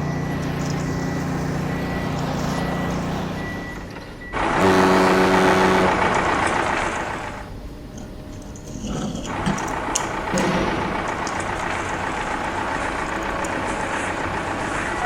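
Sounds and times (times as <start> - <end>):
faint reversing beep: 0.0 - 4.6
truck engine running: 0.0 - 15.0
loud horn blast with hiss: 4.4 - 7.3.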